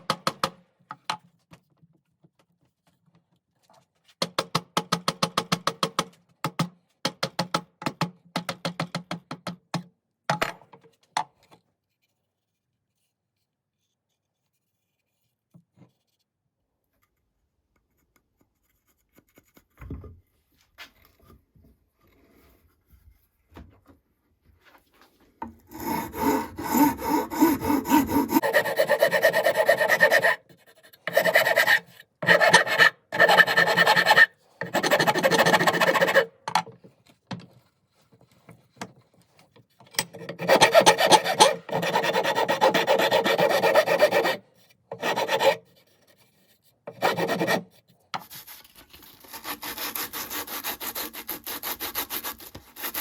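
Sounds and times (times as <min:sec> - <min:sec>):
rasp scraping wood: 0:25.5 - 0:36.4, 0:40.2 - 0:45.8, 0:46.9 - 0:53.0.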